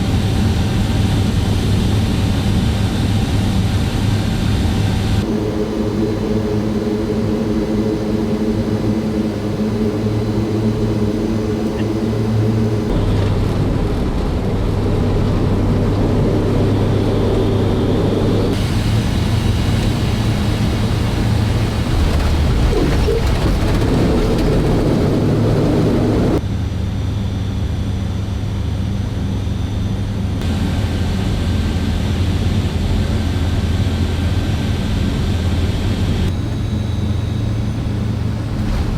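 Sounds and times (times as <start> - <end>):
turboprop engines droning: 0.0 - 38.9.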